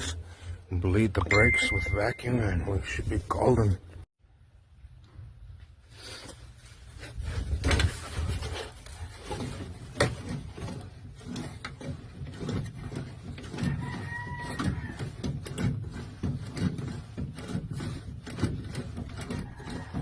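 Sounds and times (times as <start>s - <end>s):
tools knocking and rubbing: 7.5s - 20.0s.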